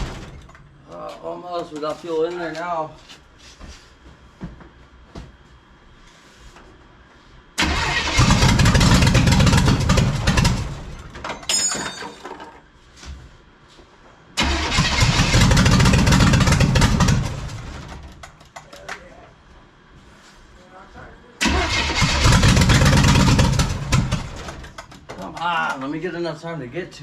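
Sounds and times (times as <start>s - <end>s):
engine firing and dying: 7.6s - 11.1s, 14.4s - 18.2s, 21.4s - 24.8s.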